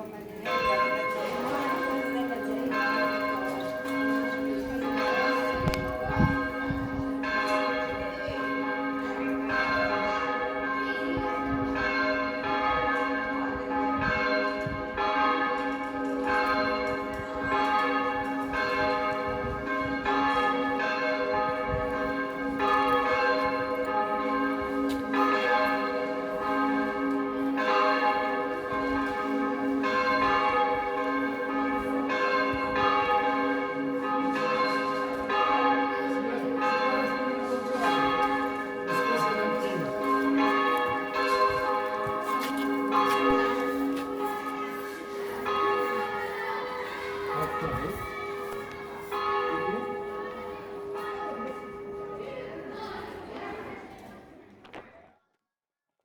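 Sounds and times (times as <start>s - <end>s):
church bells ringing: 0.0s - 53.8s.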